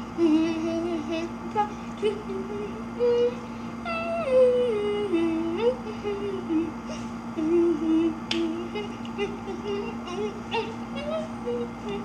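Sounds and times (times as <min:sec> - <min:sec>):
steady low hum: 0:00.0 - 0:12.0
child humming a tune: 0:03.0 - 0:12.0.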